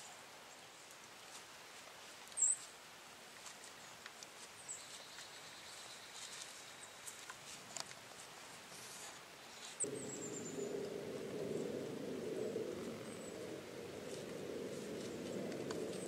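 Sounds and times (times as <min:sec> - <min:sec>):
leaf rustles: 0:00.6 - 0:16.0
faint ticks: 0:09.8 - 0:16.0.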